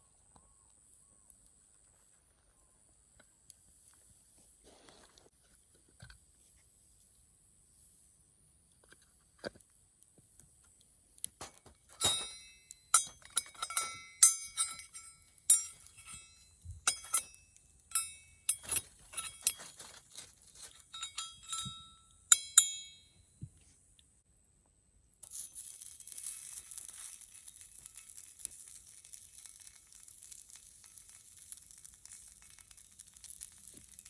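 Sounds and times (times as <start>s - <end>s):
utensil knocking metal pot: 11.4s - 19.6s, 21.0s - 23.0s.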